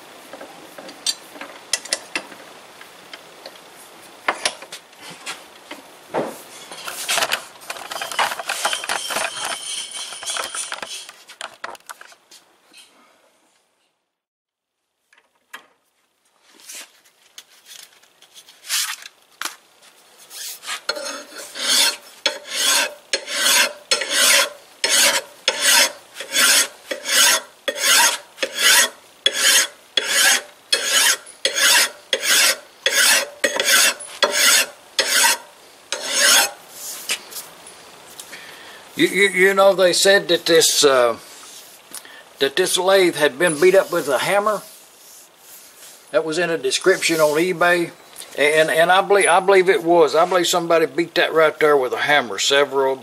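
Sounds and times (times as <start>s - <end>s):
hand file rasping on metal: 20.9s - 36.6s.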